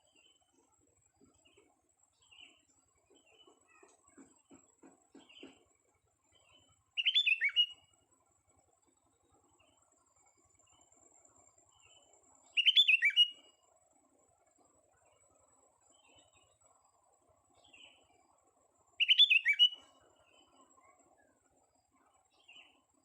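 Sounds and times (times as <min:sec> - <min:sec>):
faint bird chirps: 0:00.0 - 0:23.0
bird whistled song: 0:06.4 - 0:07.9, 0:11.9 - 0:13.6, 0:19.0 - 0:20.6.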